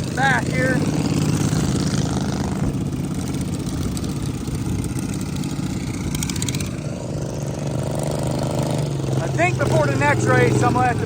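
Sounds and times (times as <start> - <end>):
riding lawn mower engine idling: 0.0 - 11.0.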